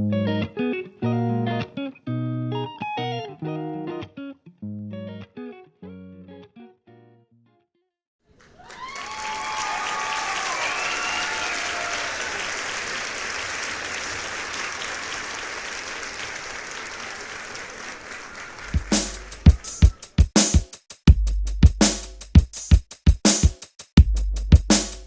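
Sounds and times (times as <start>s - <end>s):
crowd applause and cheering: 8.3s - 20.2s
voices calling out: 16.8s - 20.2s.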